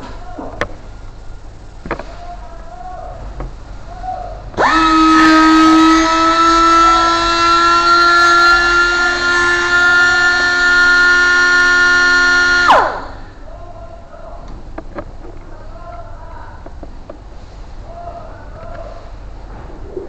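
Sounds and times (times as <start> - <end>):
machine motor whining: 4.6 - 13.4.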